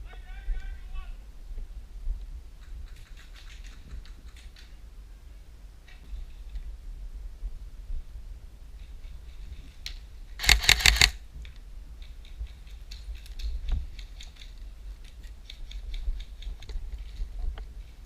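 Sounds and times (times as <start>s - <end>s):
airsoft gun rapid shots: 10.4s - 11.2s
distant airsoft clicking: 10.4s - 11.2s.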